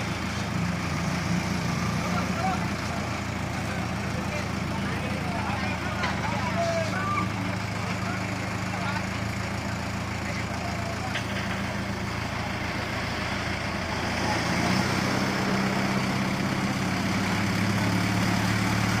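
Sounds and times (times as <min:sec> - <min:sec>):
tractor diesel engine idling: 0:00.0 - 0:19.0.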